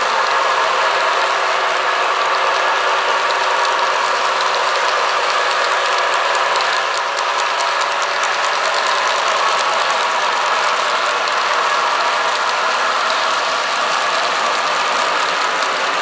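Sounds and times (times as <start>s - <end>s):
model train humming and clicking: 0.0s - 16.0s.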